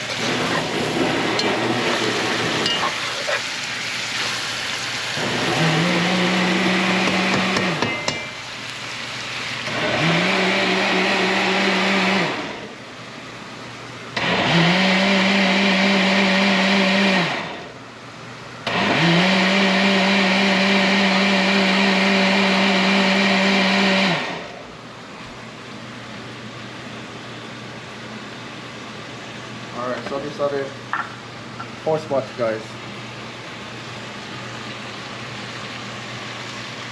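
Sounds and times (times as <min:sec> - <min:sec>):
electric blender whirring: 0:00.0 - 0:02.8, 0:03.6 - 0:08.1, 0:09.5 - 0:12.8, 0:14.2 - 0:17.7, 0:18.6 - 0:24.6.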